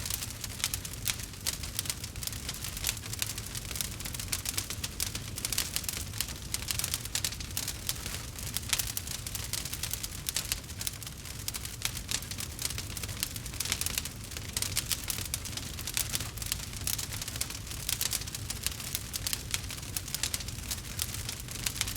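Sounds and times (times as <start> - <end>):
campfire crackling and popping: 0.0 - 21.9.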